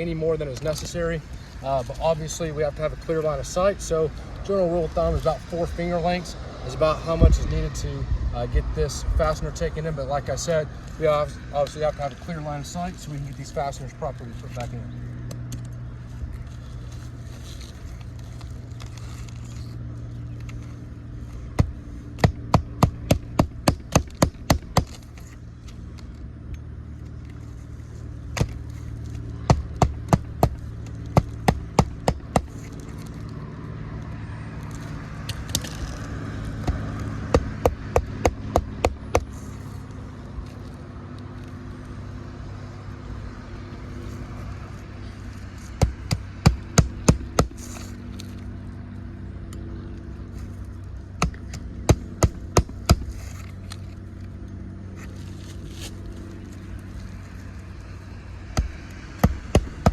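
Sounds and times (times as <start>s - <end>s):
steady low hum: 0.0s - 59.9s
hammer striking roofing nails: 21.6s - 25.0s, 58.6s - 59.9s.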